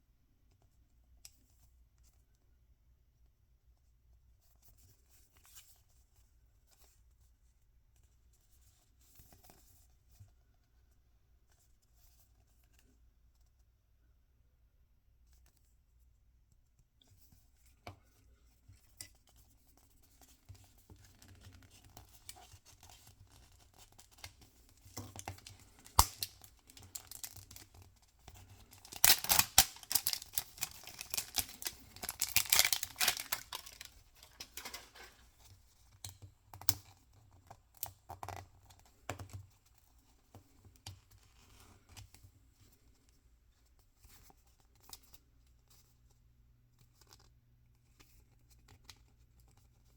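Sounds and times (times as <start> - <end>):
packaging clicks and rustles: 24.9 - 35.3
packaging tearing and crinkling: 25.2 - 27.7, 28.6 - 35.2.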